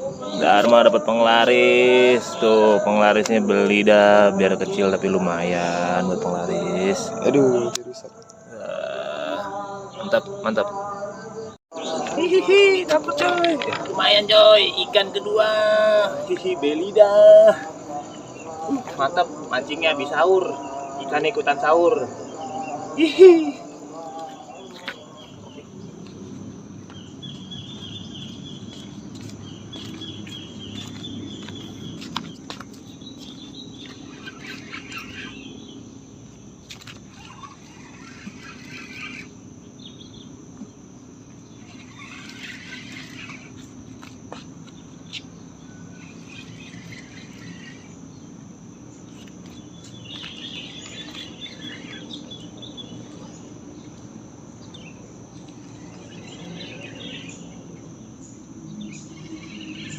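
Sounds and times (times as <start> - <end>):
night insects trilling: 0.0 - 59.9
chirping calls: 26.8 - 59.9.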